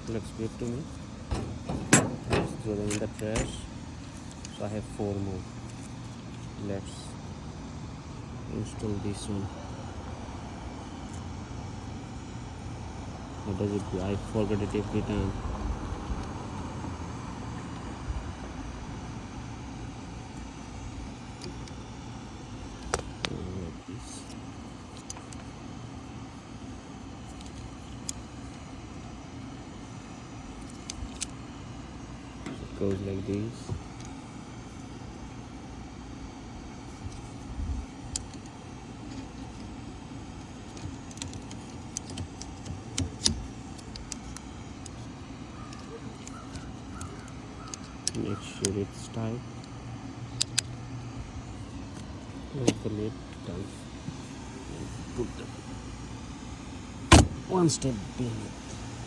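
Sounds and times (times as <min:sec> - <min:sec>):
distant engine rumble: 0:00.0 - 0:05.6
plastic and metal clicks: 0:01.3 - 0:04.6, 0:37.0 - 0:39.7, 0:40.4 - 0:45.1, 0:49.6 - 0:50.8.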